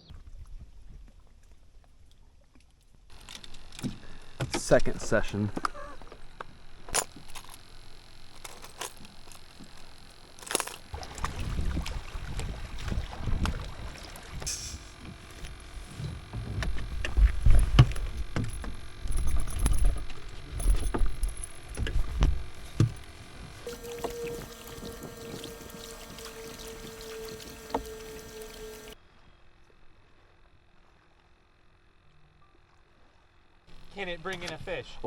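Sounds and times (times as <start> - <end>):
water rumbling against canoe hull: 10.8 - 29.0
light knocks on canoe: 14.4 - 18.8.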